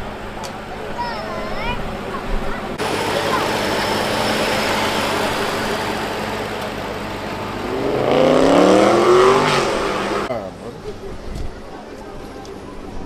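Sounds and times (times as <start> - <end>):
steady background noise: 0.0 - 13.0
car engine revving up: 2.8 - 10.3.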